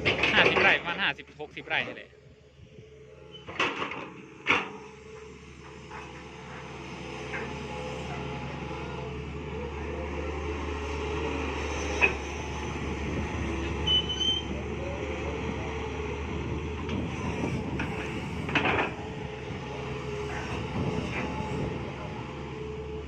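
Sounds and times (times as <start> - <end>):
excavator engine running: 0.0 - 23.0
high squeal: 13.8 - 14.6.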